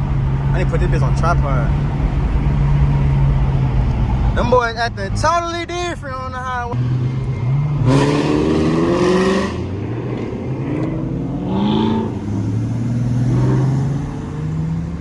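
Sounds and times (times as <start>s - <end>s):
low engine and road drone: 0.0s - 15.0s
car engines revving hard: 6.7s - 15.0s.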